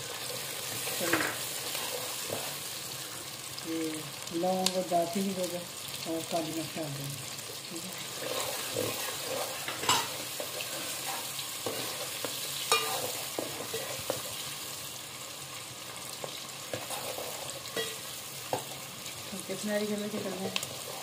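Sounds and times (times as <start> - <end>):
onions sizzling in hot fat: 0.0 - 21.0
steel ladle scraping a metal pot: 12.7 - 14.2.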